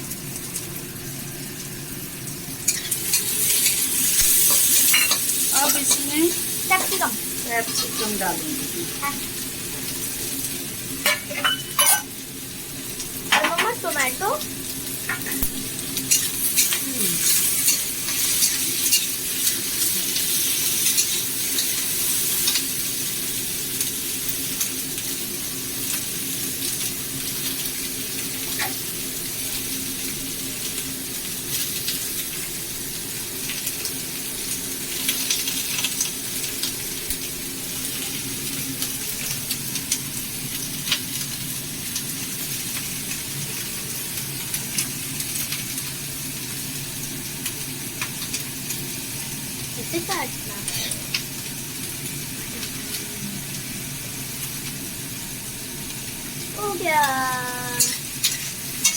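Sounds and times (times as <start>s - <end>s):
vegetables sizzling in oil: 0.0s - 58.9s
spoon scraping a pan: 2.7s - 7.0s, 7.6s - 8.2s, 11.0s - 12.1s, 15.1s - 19.5s, 50.6s - 51.2s.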